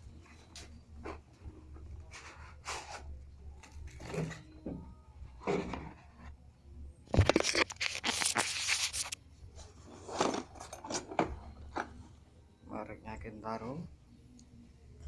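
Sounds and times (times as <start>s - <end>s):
packaging clicks and rustles: 7.2s - 9.2s
packaging ripping open: 7.2s - 9.2s.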